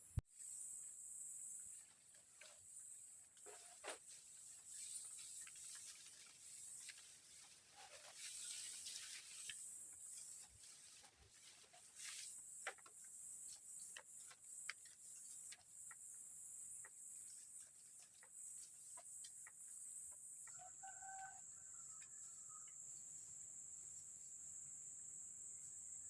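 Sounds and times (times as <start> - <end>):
insect chorus drone: 0.0 - 26.0
fowl-like bird call: 20.6 - 22.7.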